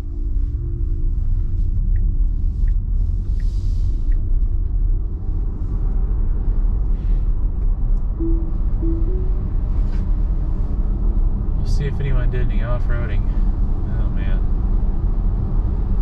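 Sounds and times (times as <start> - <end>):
road and tyre rumble: 0.0 - 8.2, 9.3 - 16.0
faint short high beeps: 8.2 - 9.5.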